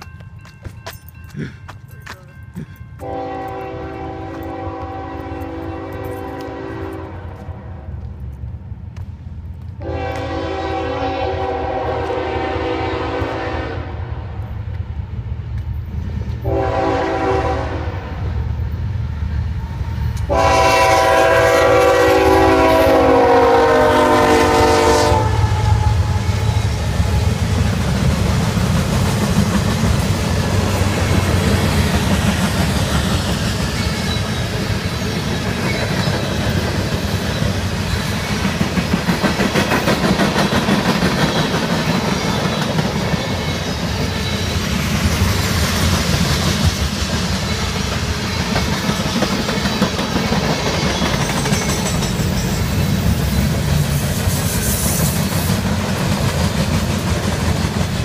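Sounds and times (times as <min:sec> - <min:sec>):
freight train rumbling past: 0:00.0 - 0:58.0
wheels clacking over rail joints: 0:27.5 - 0:54.0.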